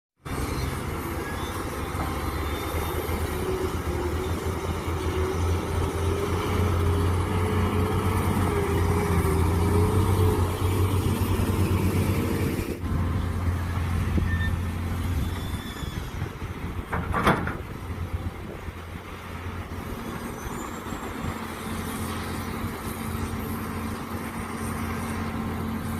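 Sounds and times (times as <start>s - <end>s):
excavator engine running: 0.2s - 25.9s.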